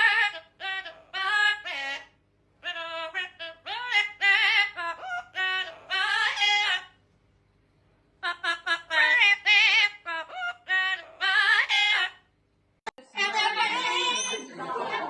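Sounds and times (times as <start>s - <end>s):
parrot singing: 0.0s - 7.0s, 8.2s - 12.3s.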